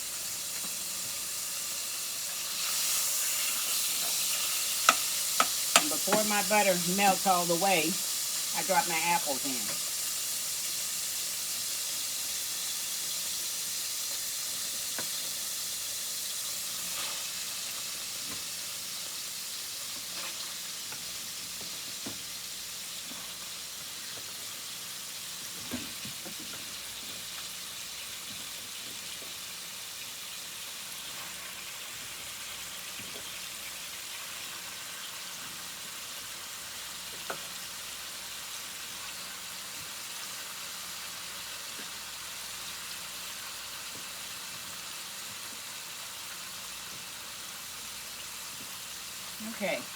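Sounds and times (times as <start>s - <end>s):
oil sizzling in a skillet: 0.0s - 49.9s.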